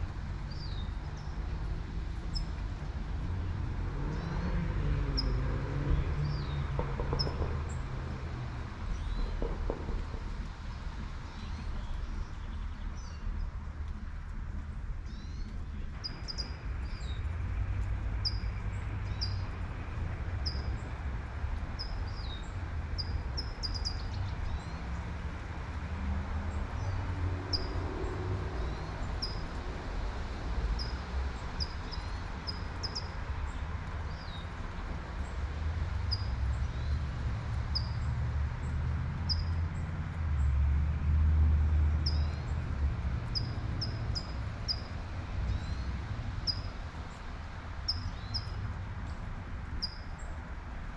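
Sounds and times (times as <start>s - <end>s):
low traffic rumble: 0.0s - 50.9s
car passing: 24.5s - 47.9s.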